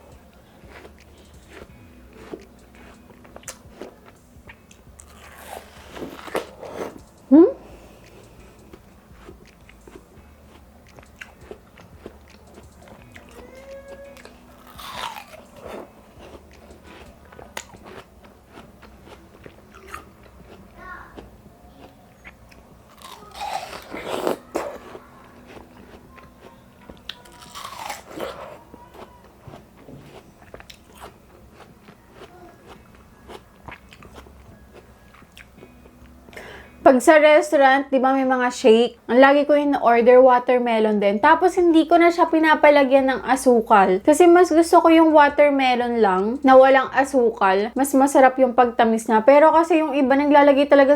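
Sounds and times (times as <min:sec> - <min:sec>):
biting and chewing watermelon: 0:00.6 - 0:07.0, 0:08.6 - 0:35.8.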